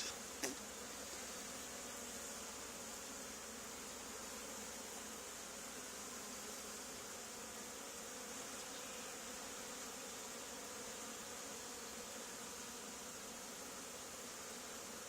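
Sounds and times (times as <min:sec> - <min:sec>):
bee swarm buzzing: 0:00.0 - 0:15.0.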